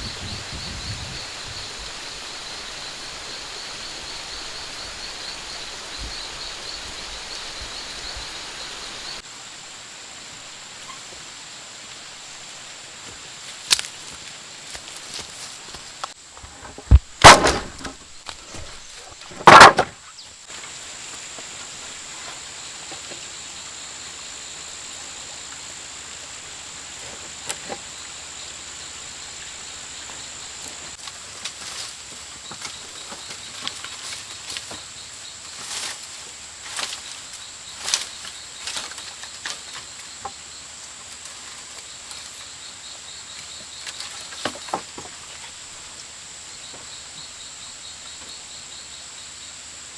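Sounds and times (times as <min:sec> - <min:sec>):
pulsing insect trill: 0:00.0 - 0:09.2
high insect drone: 0:00.0 - 0:49.9.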